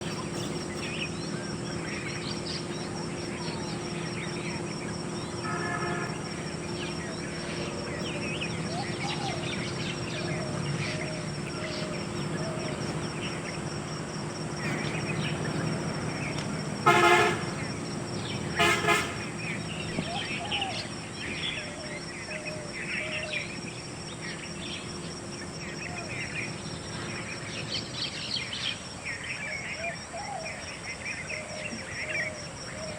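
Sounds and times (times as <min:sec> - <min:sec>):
small birds chirping: 0:00.0 - 0:32.9
horn-like toot: 0:16.8 - 0:17.6, 0:18.6 - 0:19.3.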